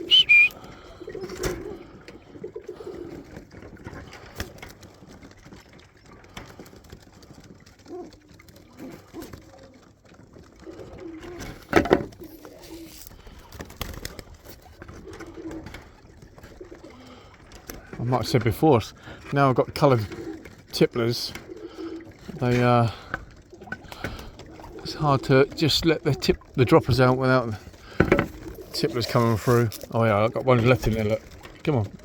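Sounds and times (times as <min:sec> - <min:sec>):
short high whistle: 0:00.0 - 0:00.6
pigeons cooing: 0:00.0 - 0:05.4, 0:06.2 - 0:18.0, 0:19.9 - 0:32.0.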